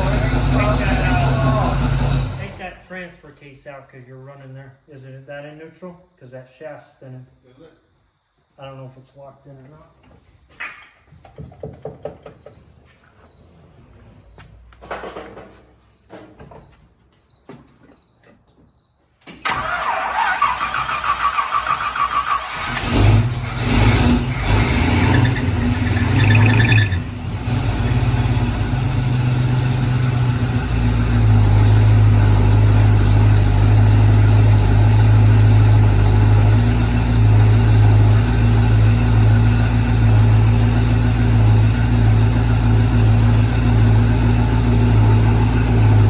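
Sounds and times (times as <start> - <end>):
engine revving and idling: 0.0 - 2.8, 19.5 - 46.0
starter motor cranking: 19.4 - 36.5.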